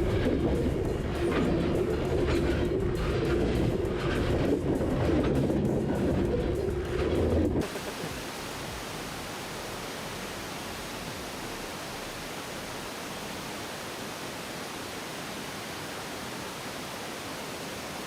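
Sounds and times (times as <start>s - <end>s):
steady hiss: 7.6s - 18.0s.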